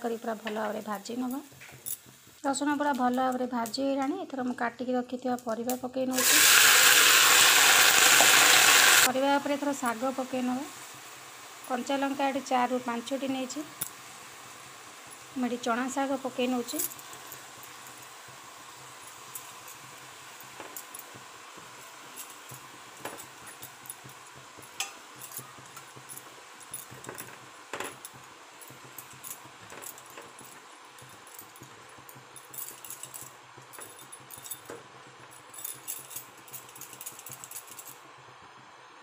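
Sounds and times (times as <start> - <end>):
vegetables sizzling in hot oil: 0.0 - 3.9, 6.0 - 32.3.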